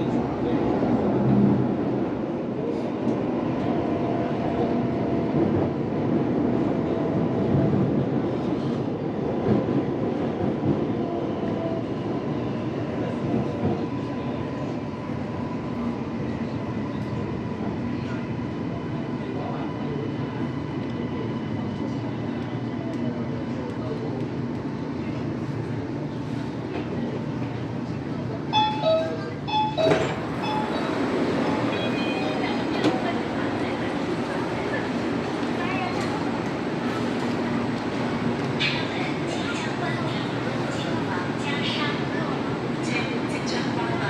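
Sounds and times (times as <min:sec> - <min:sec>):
train wheels rumbling on rail: 0:00.0 - 0:28.6.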